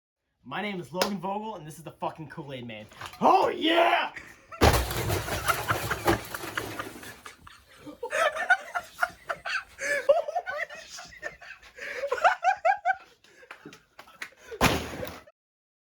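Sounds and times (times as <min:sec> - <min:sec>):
young men laughing: 0:04.0 - 0:15.3
sharp slaps: 0:14.2 - 0:15.2.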